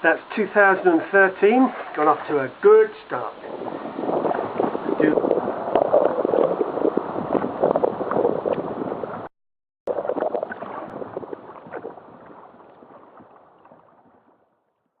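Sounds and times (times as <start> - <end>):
wind buffeting microphone: 3.1 - 9.3, 9.9 - 14.4.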